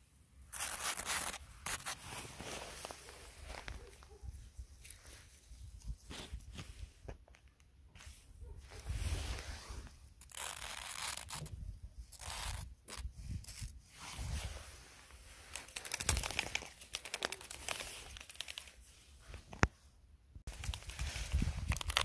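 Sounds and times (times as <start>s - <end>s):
footsteps crunching in snow: 0.6s - 4.2s.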